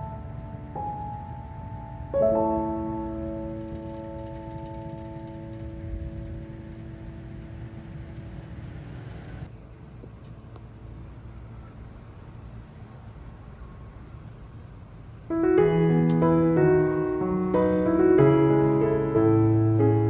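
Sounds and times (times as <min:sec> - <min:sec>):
slow piano chords: 0:00.0 - 0:09.0, 0:15.3 - 0:20.0
faint low rumble: 0:00.0 - 0:20.0.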